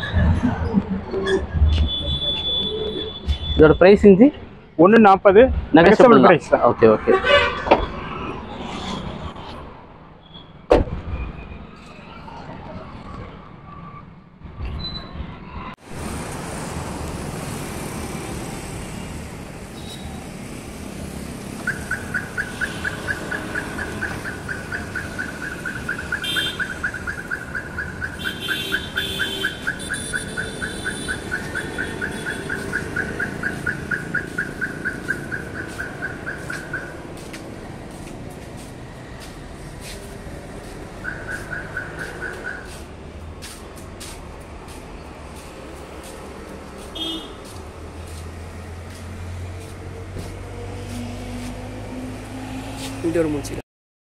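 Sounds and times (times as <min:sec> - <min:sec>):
street traffic hum: 0:00.0 - 0:53.6
vehicle beeper short beeps: 0:01.2 - 0:03.8.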